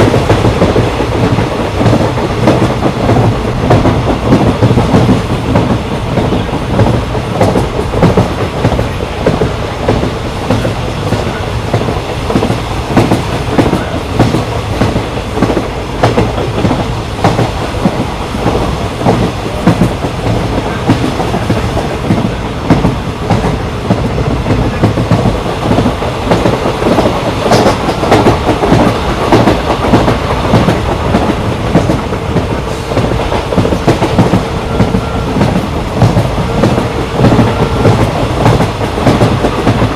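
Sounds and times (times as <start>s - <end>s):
passenger train rumbling: 0.0s - 39.9s.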